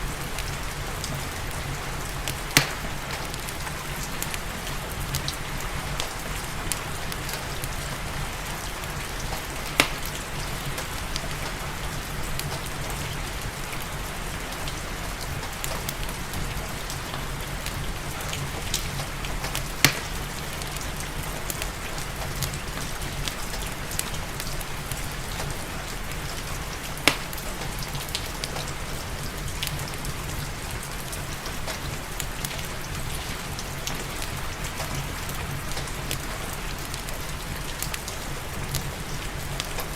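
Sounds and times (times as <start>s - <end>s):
steady rain: 0.0s - 39.9s
wood fire crackling: 0.0s - 39.9s
sharp fire pops: 2.3s - 3.5s, 9.4s - 10.9s, 19.5s - 20.3s, 27.0s - 27.4s.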